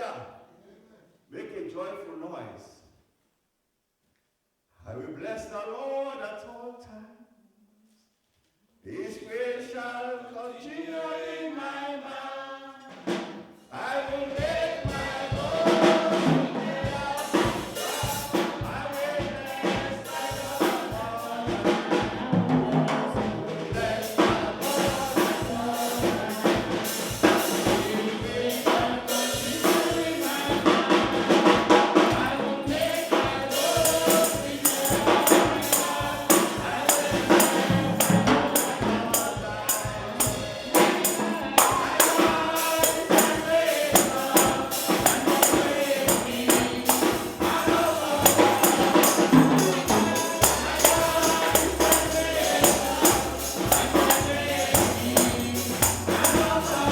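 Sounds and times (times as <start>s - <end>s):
group of voices singing: 8.9s - 56.9s
tambourine shaken and struck: 14.1s - 21.4s, 23.8s - 56.9s.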